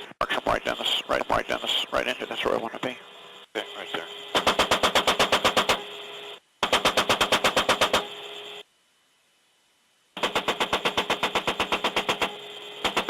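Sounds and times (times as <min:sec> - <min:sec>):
chain gun firing in bursts: 0:04.4 - 0:05.8, 0:06.6 - 0:08.1, 0:10.2 - 0:13.0.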